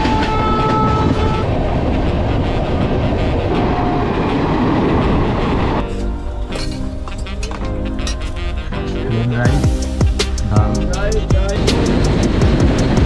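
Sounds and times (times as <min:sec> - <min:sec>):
train wheels rumbling and clattering: 0:00.0 - 0:03.1, 0:11.3 - 0:13.0
passing train: 0:00.0 - 0:09.0, 0:09.6 - 0:13.0
train horn: 0:00.0 - 0:09.6.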